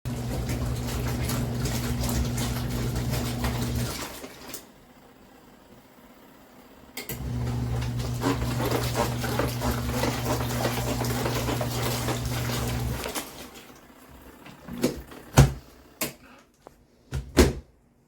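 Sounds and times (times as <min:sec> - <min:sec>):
washing machine motor humming: 0:00.0 - 0:17.6
water churning and sloshing: 0:00.1 - 0:04.7, 0:07.3 - 0:13.9.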